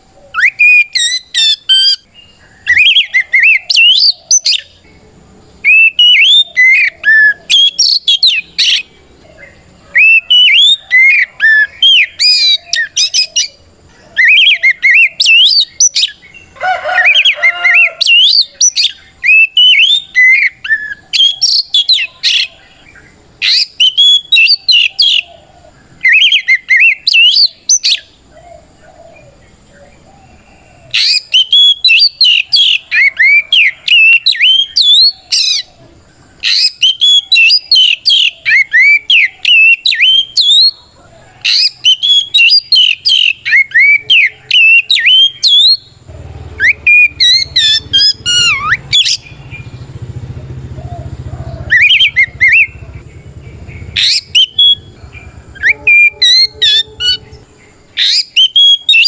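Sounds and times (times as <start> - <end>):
bird singing whistled phrases: 0.3 - 4.8, 5.6 - 13.6, 14.2 - 25.3, 26.0 - 28.1, 30.9 - 35.7, 36.4 - 40.8, 41.5 - 46.0, 46.6 - 49.7, 51.7 - 52.8, 53.8 - 59.0
low rumble: 49.2 - 58.0.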